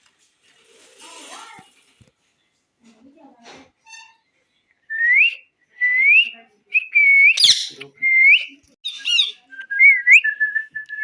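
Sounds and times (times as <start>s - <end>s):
parrot whistling: 7.0s - 10.2s
harsh parrot calls: 7.2s - 7.8s.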